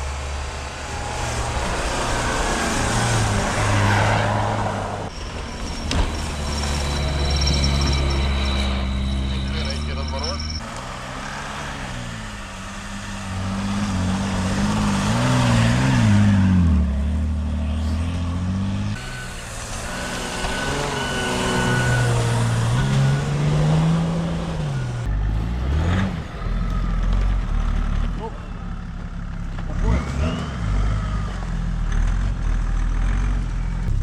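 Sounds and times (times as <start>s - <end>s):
suv engine revving: 0.0s - 28.5s, 29.6s - 34.0s.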